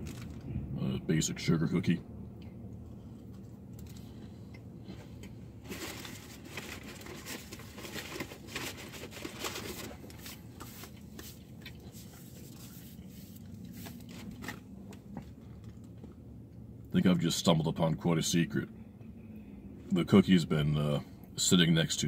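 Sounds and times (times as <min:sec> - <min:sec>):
low steady hum: 0:00.0 - 0:22.0
person chewing cookie: 0:10.1 - 0:16.2.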